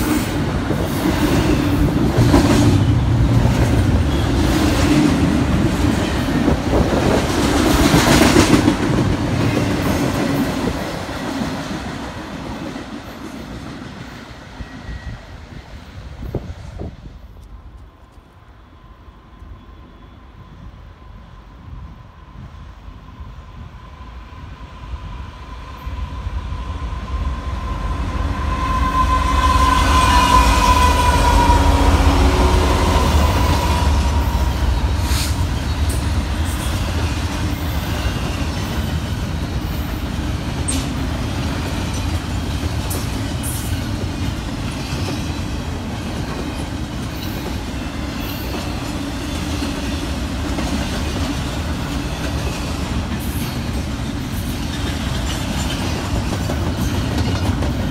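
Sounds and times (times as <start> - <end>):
train horn: 25.7 - 36.0
freight cars rumbling past: 27.0 - 39.5.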